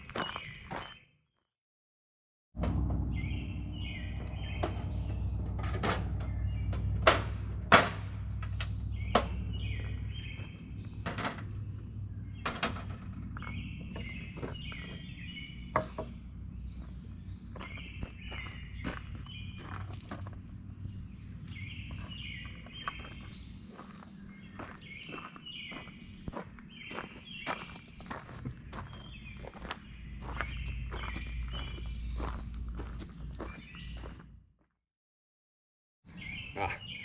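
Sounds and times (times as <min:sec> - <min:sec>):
birds chirping: 0:00.0 - 0:01.2, 0:02.6 - 0:34.3, 0:36.1 - 0:37.0
low rumble: 0:02.6 - 0:25.0
high insect drone: 0:02.6 - 0:34.4.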